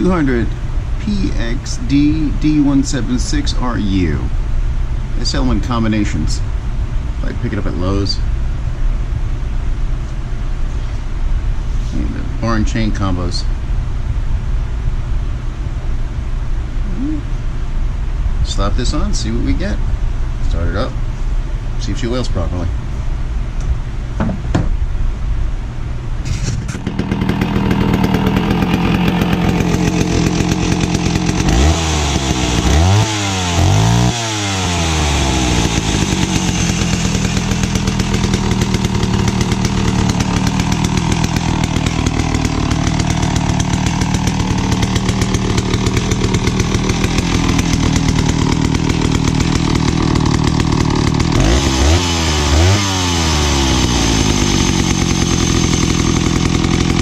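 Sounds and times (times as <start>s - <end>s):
chainsaw running and revving: 26.8s - 57.0s.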